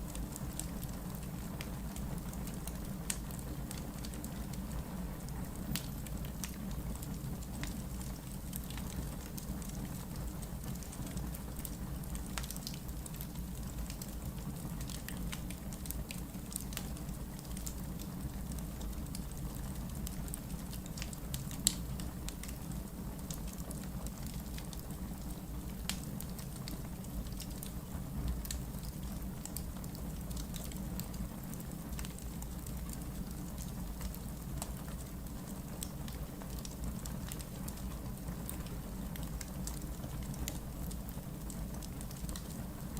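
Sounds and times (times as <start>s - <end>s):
wood fire crackling and popping: 0.0s - 42.9s.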